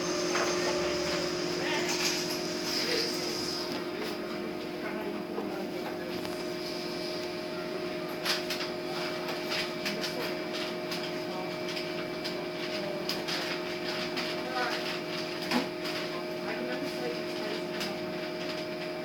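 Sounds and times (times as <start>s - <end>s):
bus cabin hum: 0.0s - 2.8s.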